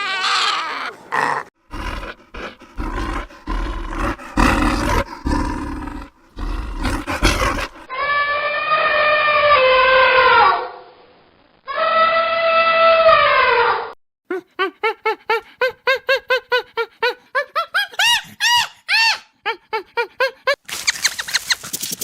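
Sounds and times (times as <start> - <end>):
animal long high call: 0.0 - 10.9, 11.7 - 13.9
lion roaring and grunting: 0.9 - 7.9.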